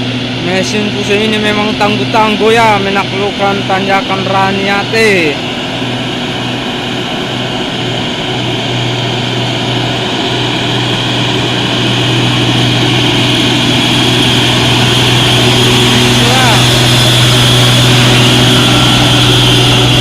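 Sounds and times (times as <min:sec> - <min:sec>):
truck diesel engine under load: 0:08.4 - 0:20.0.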